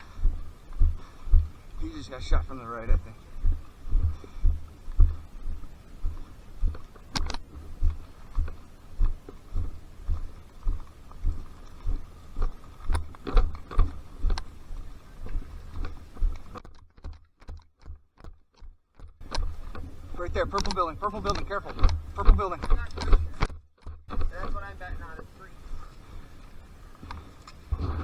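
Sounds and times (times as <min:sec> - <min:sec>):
footsteps thudding: 0:00.2 - 0:01.6, 0:03.4 - 0:14.0
sharp clicks: 0:06.7 - 0:08.6, 0:17.4 - 0:25.4.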